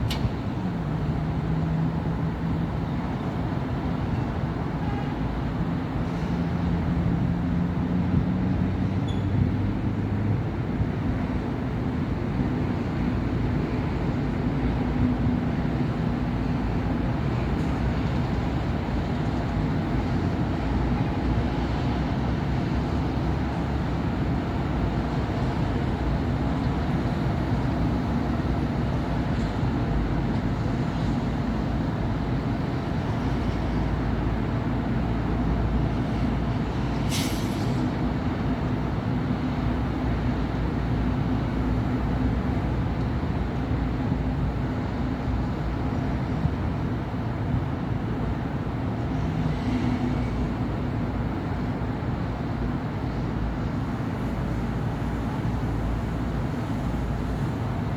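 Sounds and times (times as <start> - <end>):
traffic rumble: 0.0 - 57.9
air brake hiss: 37.0 - 38.0.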